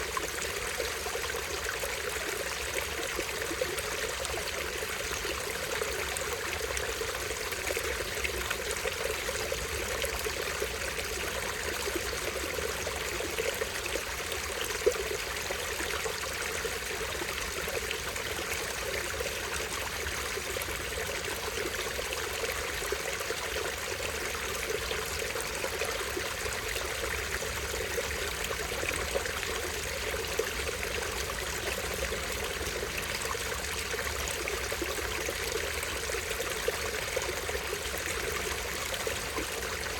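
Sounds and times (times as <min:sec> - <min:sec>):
stream trickling over small waterfall: 0:00.0 - 0:39.9.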